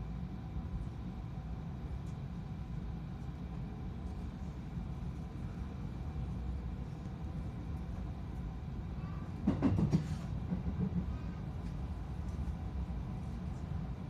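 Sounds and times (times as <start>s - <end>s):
train running rumble: 0.0s - 14.0s
train clattering: 9.2s - 12.6s.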